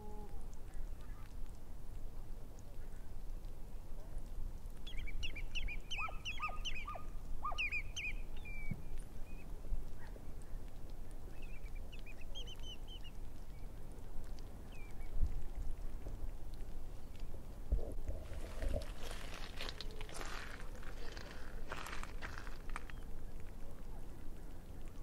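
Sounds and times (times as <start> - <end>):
waterbirds calling: 4.8 - 10.5, 11.3 - 13.8, 17.0 - 24.2.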